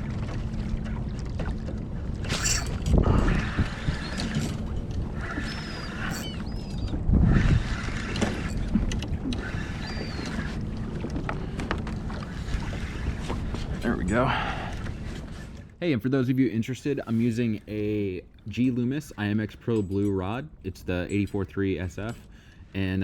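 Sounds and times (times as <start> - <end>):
water lapping around kayak: 0.0 - 19.4
seabirds calling: 0.3 - 15.8
wind on microphone: 2.0 - 15.3
fishing cast swish: 2.2 - 2.8
fishing reel cranking: 2.3 - 4.6, 5.2 - 7.7.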